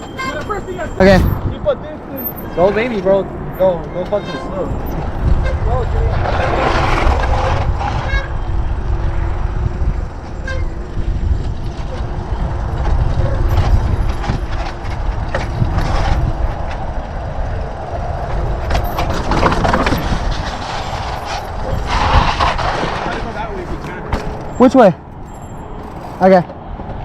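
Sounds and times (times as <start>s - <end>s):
tyres on loose dirt: 0.0s - 9.4s, 10.0s - 27.0s
wind on microphone: 4.8s - 24.1s
bike clattering over bumps: 18.2s - 27.0s.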